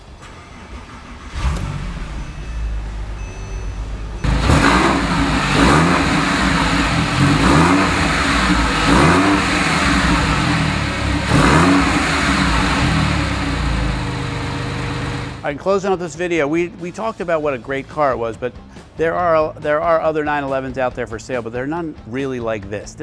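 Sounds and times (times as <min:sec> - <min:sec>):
car engine starting and revving: 0:00.0 - 0:15.4.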